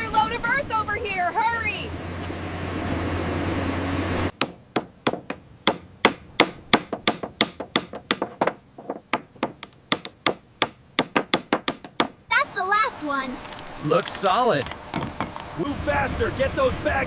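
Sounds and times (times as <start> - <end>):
steady rumbling: 0.0 - 17.0.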